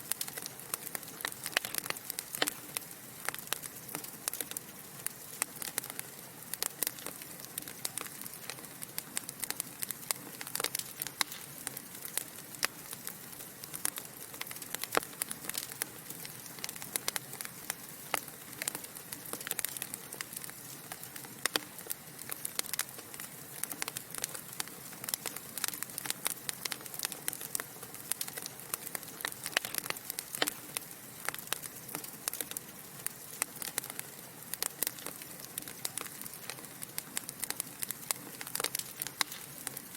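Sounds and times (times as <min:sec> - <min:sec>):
burning logs crackling and popping: 0:00.0 - 0:39.9.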